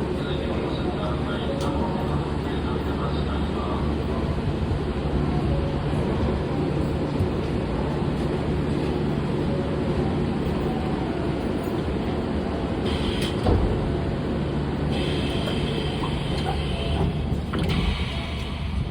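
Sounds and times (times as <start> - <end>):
train low hum: 0.0 - 18.9
train sliding doors closing: 10.2 - 18.9.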